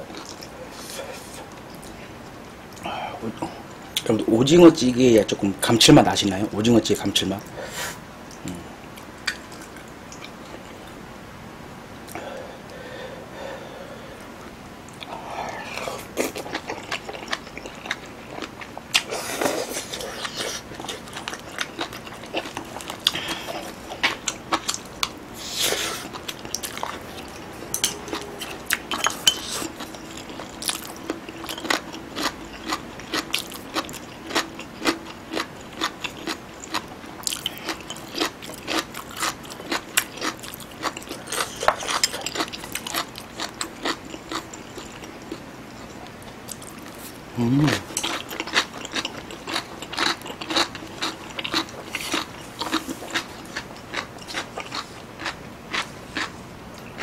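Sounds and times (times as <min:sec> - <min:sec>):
wet chewing and mouth smacks: 0:47.9 - 0:57.0.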